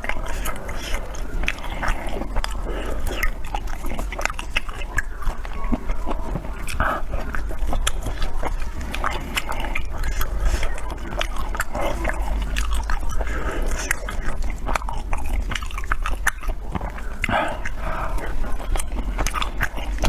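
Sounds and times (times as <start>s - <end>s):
person chewing food: 0.0s - 20.0s
wet mouth clicks and smacks: 0.0s - 20.0s.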